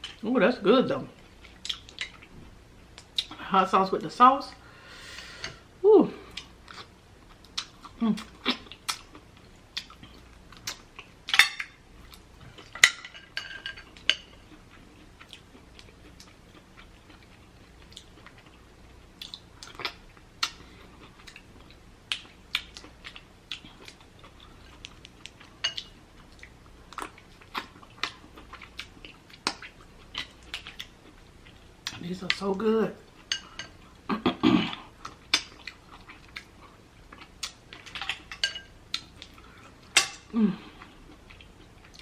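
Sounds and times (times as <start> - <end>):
wet chewing and lip smacking: 1.4 - 2.3, 13.9 - 32.0, 40.8 - 42.0.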